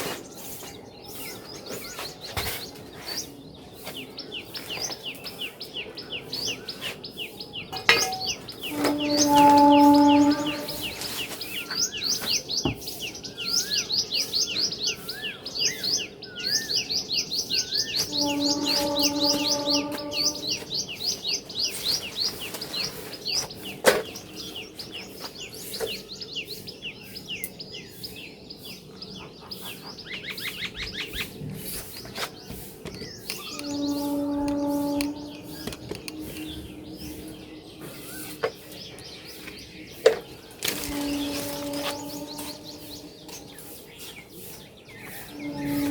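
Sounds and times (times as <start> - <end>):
birds chirping: 0.0 - 45.9
wavy whistled bird call: 7.3 - 12.5, 13.2 - 22.3, 32.5 - 45.9
steady pitched tone: 18.1 - 20.7, 33.4 - 38.5, 45.1 - 45.9.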